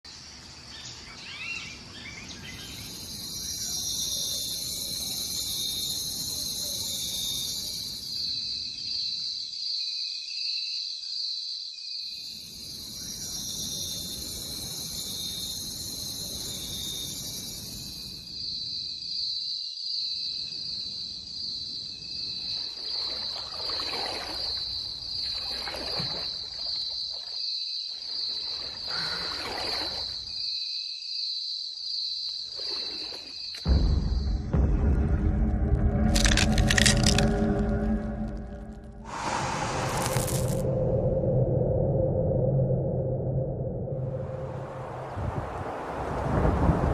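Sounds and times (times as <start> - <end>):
pulsing insect trill: 2.4 - 44.6.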